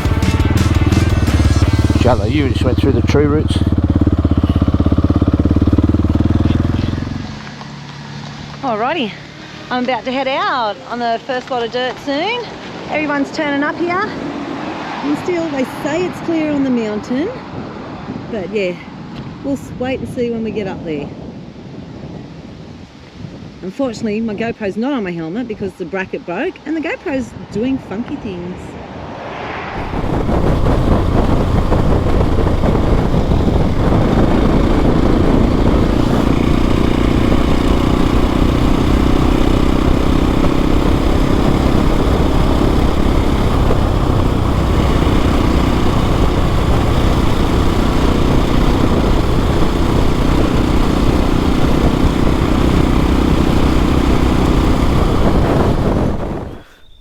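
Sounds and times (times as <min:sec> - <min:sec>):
motorcycle engine droning: 0:00.0 - 0:14.4, 0:29.8 - 0:57.0
wind noise: 0:12.2 - 0:57.0.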